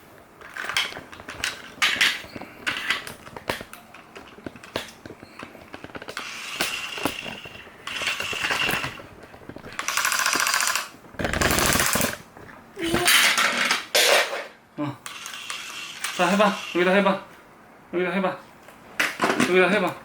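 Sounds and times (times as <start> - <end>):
toy drill motor whirring: 6.1 - 9.0, 9.8 - 12.2, 15.1 - 17.0.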